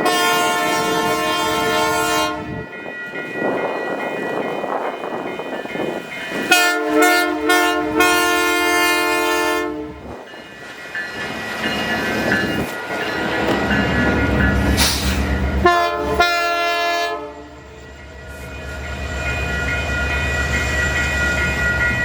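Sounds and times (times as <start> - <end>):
locomotive air horn blasts: 0.0 - 2.6, 6.5 - 10.0, 15.6 - 17.5
low train rumble: 0.0 - 22.0
wind noise: 0.7 - 8.0, 9.8 - 16.2.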